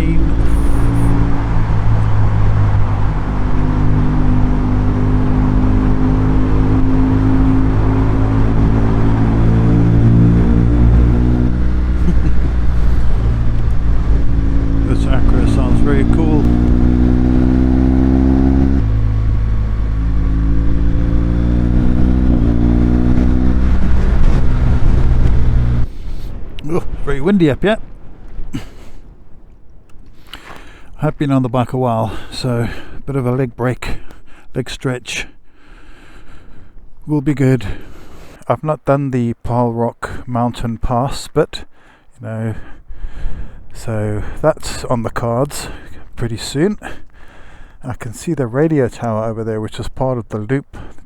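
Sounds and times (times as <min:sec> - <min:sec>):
motorcycle engine cruising: 0:00.0 - 0:28.9
riding wind noise: 0:00.0 - 0:51.0.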